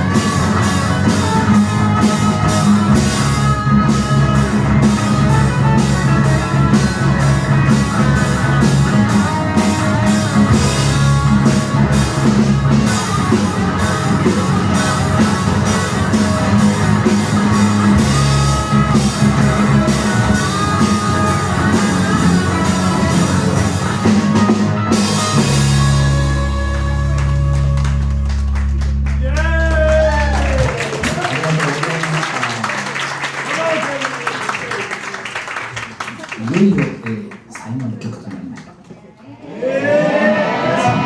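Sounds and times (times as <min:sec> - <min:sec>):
drum kit steady beat: 0:00.0 - 0:28.2
electric guitar lines: 0:00.0 - 0:31.2.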